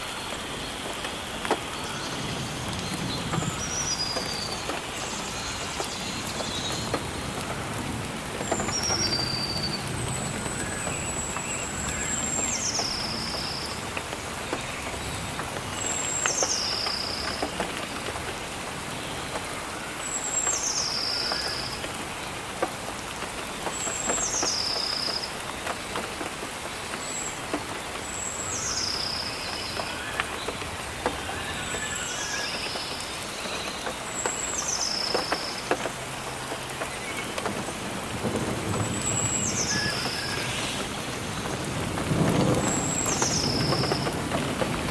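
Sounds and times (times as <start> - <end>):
rain falling on leaves: 0.0 - 44.9.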